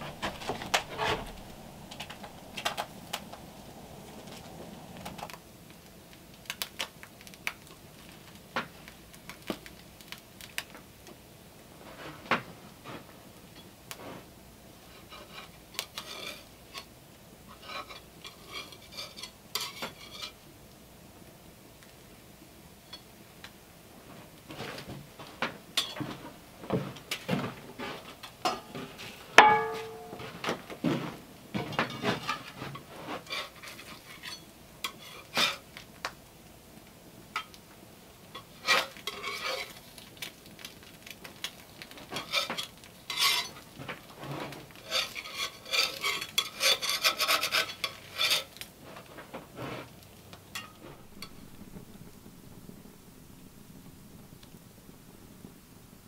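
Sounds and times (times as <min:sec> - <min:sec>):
scraping and rubbing: 0:00.0 - 0:05.4, 0:42.0 - 0:50.0, 0:50.6 - 0:55.6
ringing metal clink: 0:29.4 - 0:30.4.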